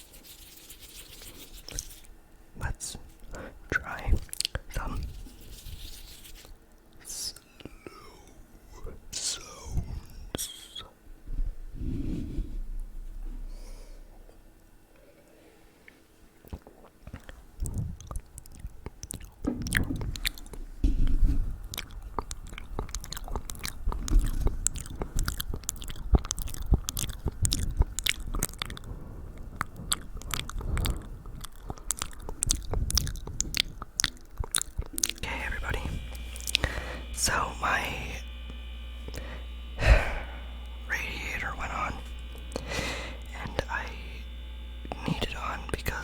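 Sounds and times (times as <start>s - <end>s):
wet lip and tongue clicks: 3.8s - 5.0s, 15.8s - 20.6s, 21.6s - 37.9s.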